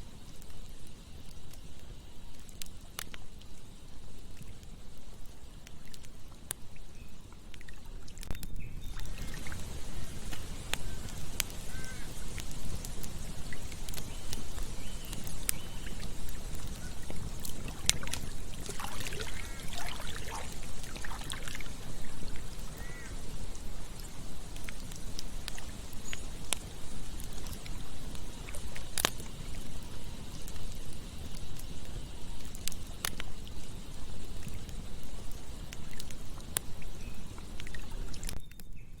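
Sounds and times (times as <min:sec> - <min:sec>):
wood crackling in campfire: 0:00.0 - 0:39.0
sharp pops: 0:07.6 - 0:29.4
short wavering whistles: 0:09.9 - 0:12.3, 0:18.8 - 0:23.2.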